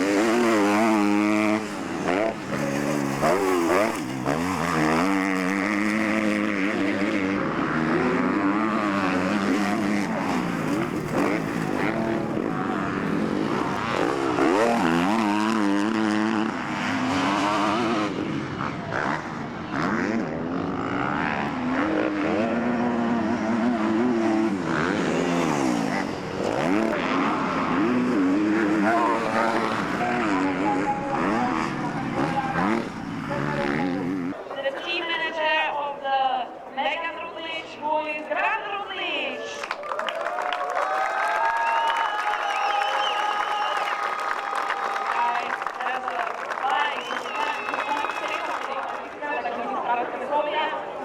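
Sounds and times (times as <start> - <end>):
motocross bike engines revving: 0.0 - 39.8, 41.0 - 51.0
bikes passing by: 0.0 - 51.0.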